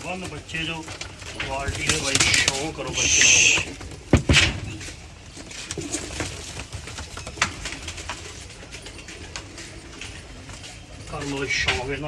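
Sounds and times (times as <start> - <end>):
clicks and scuffling: 0.0 - 12.0
pigeons cooing: 0.1 - 12.0
loud knocks: 4.0 - 4.7.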